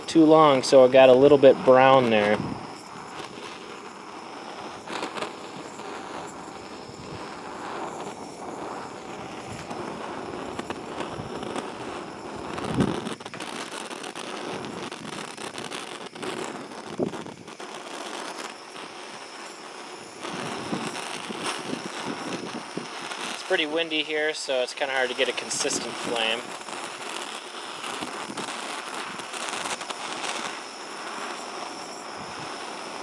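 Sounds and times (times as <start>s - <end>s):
blowtorch flame hissing: 0.0s - 33.0s
gusting wind: 0.0s - 33.0s.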